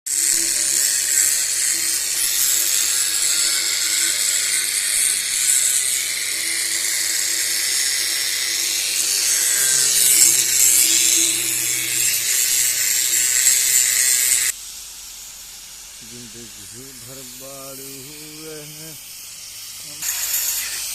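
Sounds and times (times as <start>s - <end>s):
grinding wheel on metal: 0.1s - 14.6s, 16.2s - 20.9s
faint humming tone: 0.3s - 14.5s, 16.0s - 19.2s.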